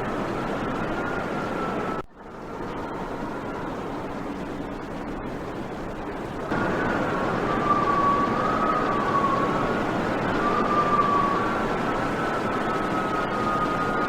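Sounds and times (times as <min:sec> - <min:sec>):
strong wind rushing: 0:00.0 - 0:14.0
high wavering whistle: 0:06.5 - 0:14.0.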